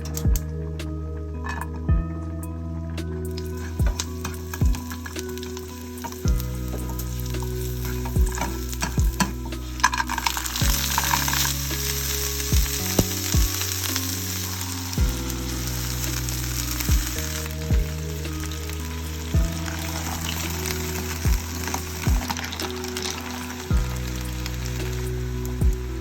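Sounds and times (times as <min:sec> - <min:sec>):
food sizzling in a pan: 0:03.4 - 0:26.0.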